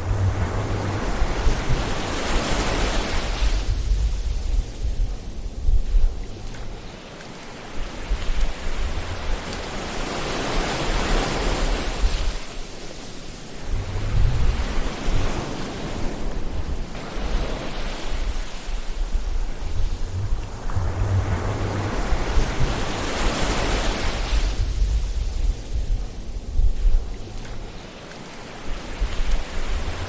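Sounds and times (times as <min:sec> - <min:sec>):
low surf rumble: 0:00.0 - 0:06.9, 0:13.5 - 0:30.0
waves washing in: 0:00.0 - 0:30.0.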